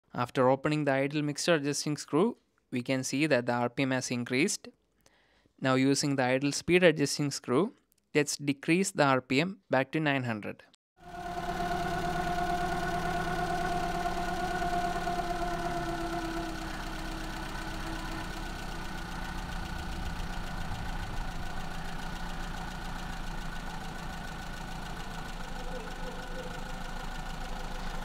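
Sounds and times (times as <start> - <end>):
car engine idling: 11.0 - 28.0.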